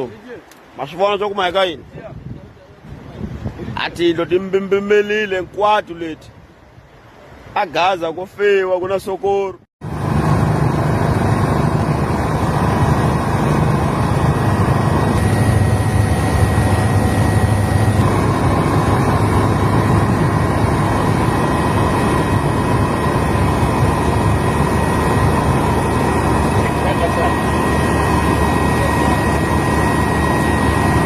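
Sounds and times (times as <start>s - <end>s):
engine drone: 9.8s - 31.0s
faint steady whines: 9.8s - 31.0s.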